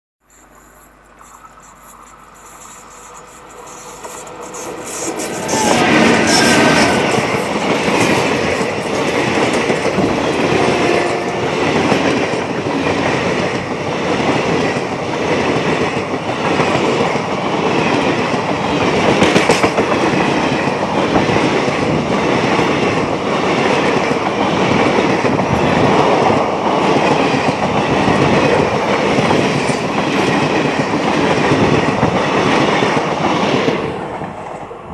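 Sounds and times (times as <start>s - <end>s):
wheels clickety-clack over rail joints: 0.7s - 34.9s
passing train rumble: 1.0s - 34.9s.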